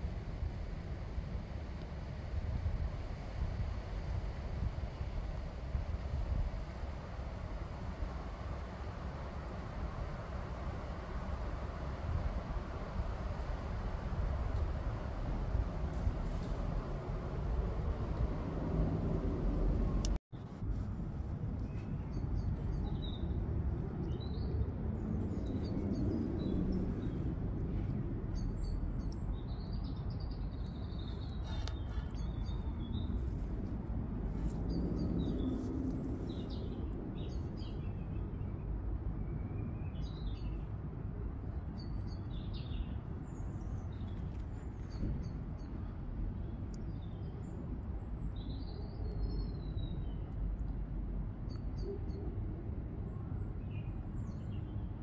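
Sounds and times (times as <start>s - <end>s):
birds chirping: 28.3s - 33.5s.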